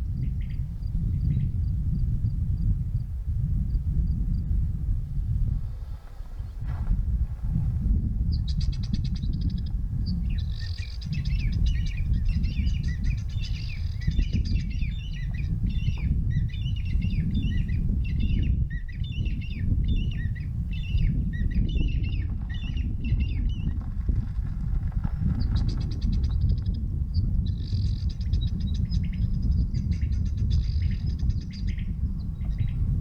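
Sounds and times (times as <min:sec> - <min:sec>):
bird chirping: 0:08.3 - 0:23.7.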